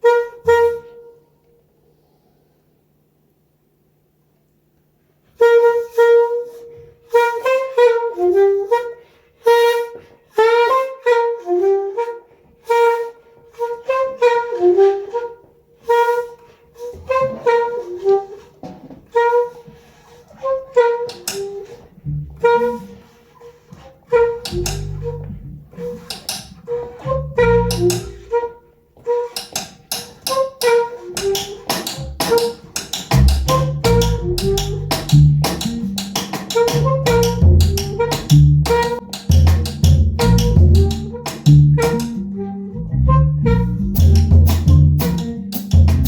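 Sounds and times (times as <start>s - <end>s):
wind instrument jazz tune: 0.0s - 1.3s, 5.3s - 46.0s
soft low notes: 24.2s - 25.8s, 33.2s - 36.1s, 36.7s - 46.0s.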